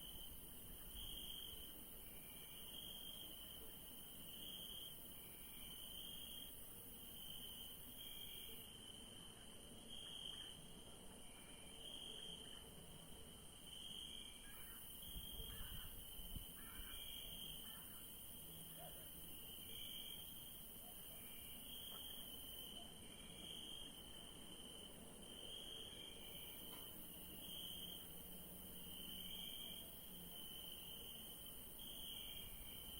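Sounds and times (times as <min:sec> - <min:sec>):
crickets chirping: 0:00.0 - 0:32.9
high-pitched insect trill: 0:13.7 - 0:18.6.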